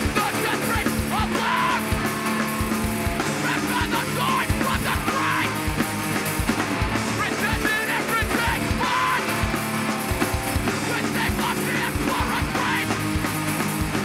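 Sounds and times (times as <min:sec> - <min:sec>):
shouted vocals: 0:00.0 - 0:02.5, 0:03.2 - 0:05.8, 0:07.1 - 0:09.6, 0:10.6 - 0:13.1
distorted guitars: 0:00.0 - 0:14.0
pounding drums: 0:00.0 - 0:14.0.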